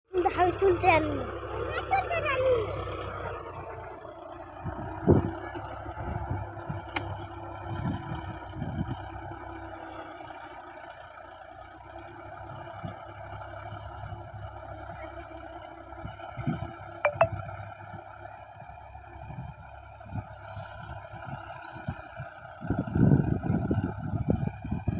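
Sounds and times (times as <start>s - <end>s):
tractor diesel engine running: 0.1s - 24.9s.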